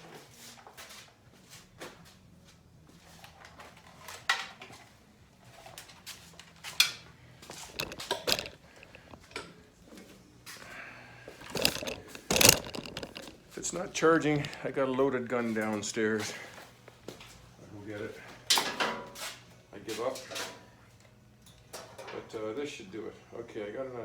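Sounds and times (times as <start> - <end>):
clicks and knocks of objects: 5.8 - 9.6, 10.6 - 14.7
rustling of small objects: 7.5 - 9.5, 10.6 - 14.8.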